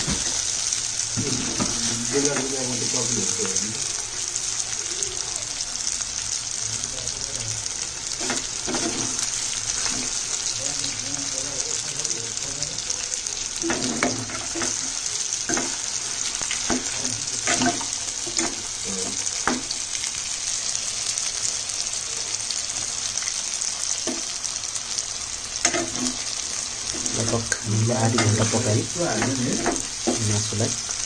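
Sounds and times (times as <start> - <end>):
curry sizzling in oil: 0.0 - 31.0
metal spoon scraping pan: 8.2 - 10.2, 13.6 - 14.9, 15.5 - 19.6, 25.6 - 26.3.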